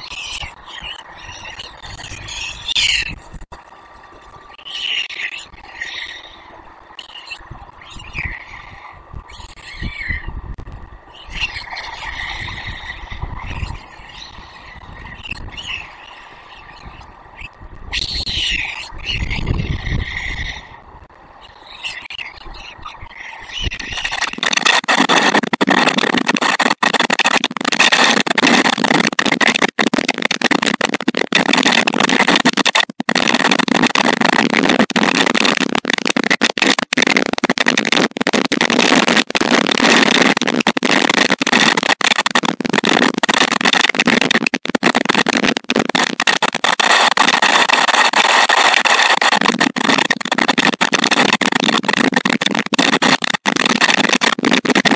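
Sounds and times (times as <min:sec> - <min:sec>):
rain and wind rushing: 0:23.5 - 0:54.9.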